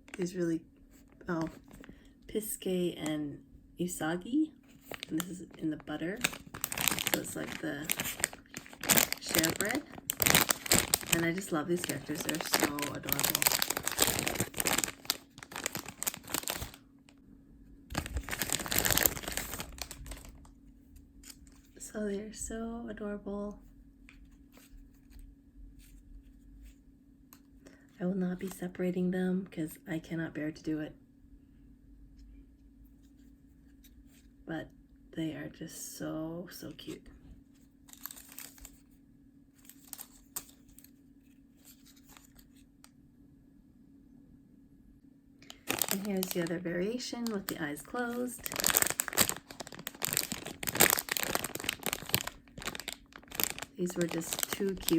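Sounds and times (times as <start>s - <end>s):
plastic packaging crinkling: 0.0s - 2.0s, 4.6s - 17.2s, 17.9s - 20.6s, 37.6s - 39.0s, 39.6s - 42.7s, 45.4s - 54.9s
low steady hum: 0.0s - 54.9s.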